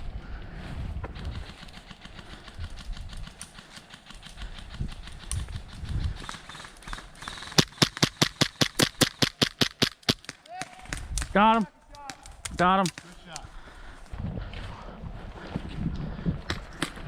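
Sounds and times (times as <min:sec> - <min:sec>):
airsoft rifle firing: 0:06.2 - 0:11.2.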